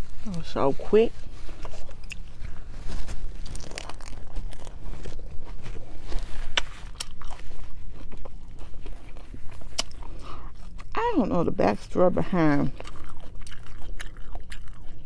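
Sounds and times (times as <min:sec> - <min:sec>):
lettuce crunching: 0:00.1 - 0:11.2, 0:12.2 - 0:15.0
wet chewing clicks: 0:03.3 - 0:11.0, 0:12.6 - 0:15.0.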